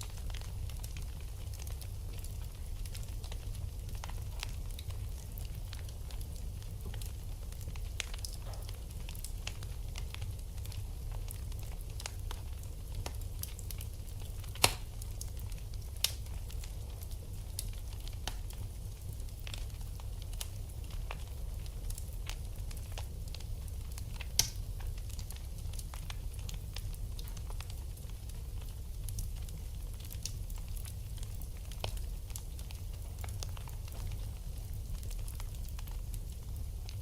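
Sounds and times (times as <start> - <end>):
wood fire crackling: 0.0 - 37.0
loud fire pops: 13.0 - 16.6.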